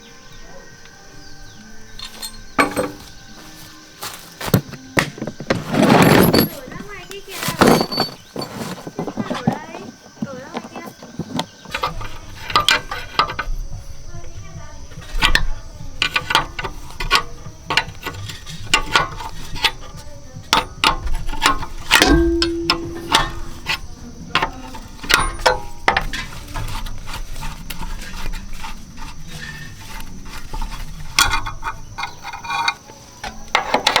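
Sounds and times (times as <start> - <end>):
hand tools clinking on metal: 0.3 - 34.0
metal strike ringing tone: 22.0 - 23.9.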